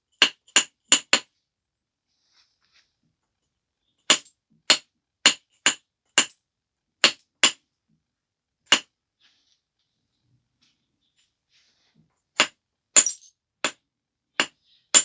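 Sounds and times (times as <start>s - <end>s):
knapping hammer striking stone: 4.1s - 6.4s, 12.4s - 13.8s, 14.4s - 15.0s.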